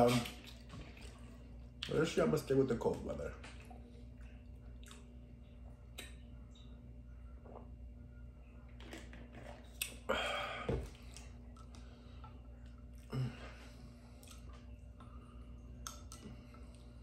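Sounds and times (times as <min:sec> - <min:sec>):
person chewing: 0:04.2 - 0:05.2, 0:14.1 - 0:15.1.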